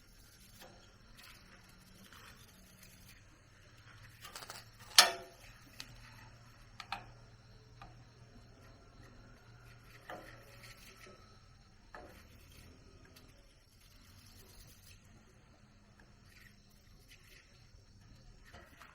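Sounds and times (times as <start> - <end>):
faint low hum: 0.0 - 18.9
sharp clicks and knocks: 4.2 - 6.0, 6.7 - 7.2.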